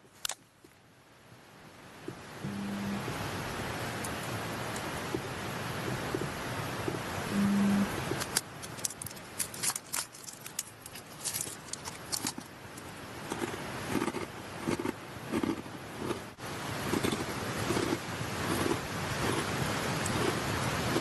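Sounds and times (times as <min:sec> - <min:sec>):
mountain stream rushing: 0:01.2 - 0:21.0
snack packaging crinkling: 0:08.2 - 0:14.8
rice crackers crunched and chewed: 0:08.3 - 0:12.5.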